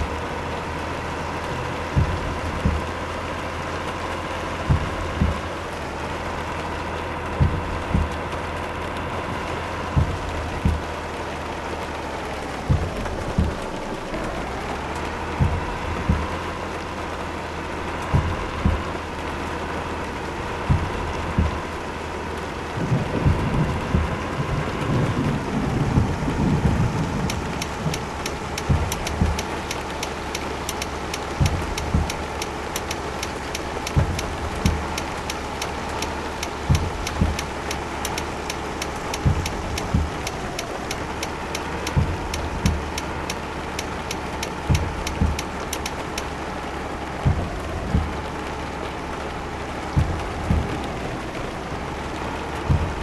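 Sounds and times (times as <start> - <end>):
short low thumps: 0.0 - 53.0
truck engine and road noise: 0.0 - 53.0
quick light ticks: 26.0 - 46.3.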